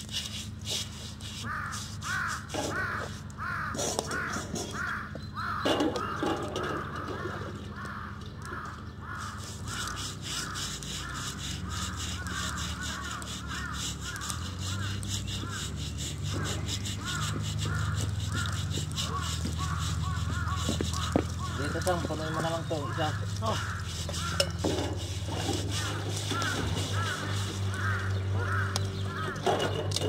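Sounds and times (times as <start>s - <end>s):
bird calling: 0.6s - 30.0s
short rough work noises: 9.1s - 30.0s.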